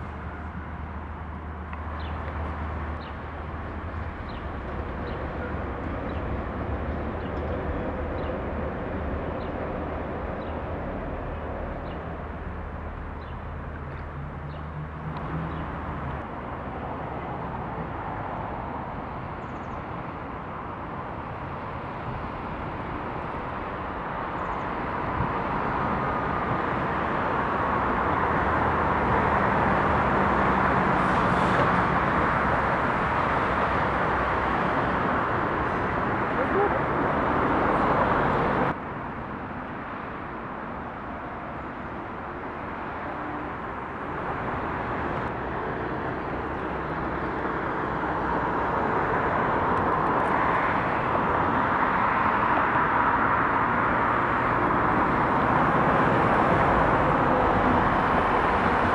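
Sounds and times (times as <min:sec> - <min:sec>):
train rumble and rail noise: 0:00.0 - 0:14.1
electric train humming on bridge: 0:00.0 - 0:58.9.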